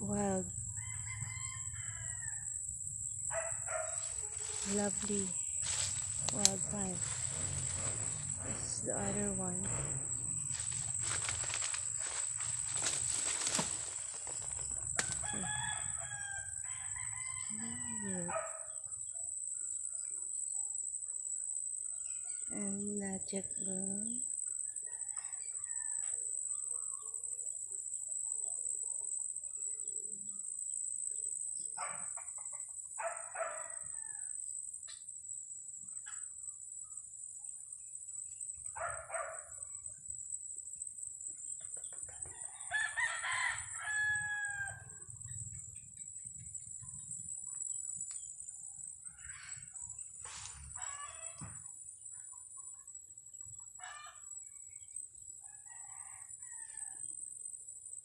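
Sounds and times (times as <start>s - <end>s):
chickens clucking and crowing: 31.8s - 34.2s, 49.0s - 51.6s, 52.3s - 57.2s.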